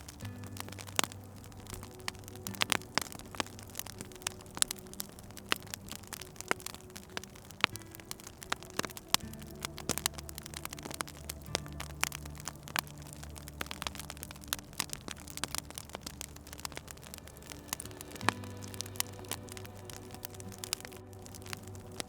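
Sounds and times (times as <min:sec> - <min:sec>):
low steady hum: 0:00.0 - 0:22.0
wood fire crackling: 0:00.0 - 0:22.0.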